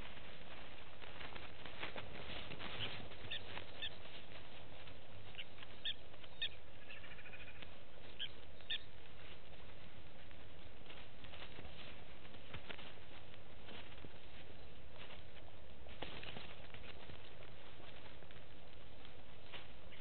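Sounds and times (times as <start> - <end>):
short high bird calls: 2.7 - 4.0, 5.4 - 8.9.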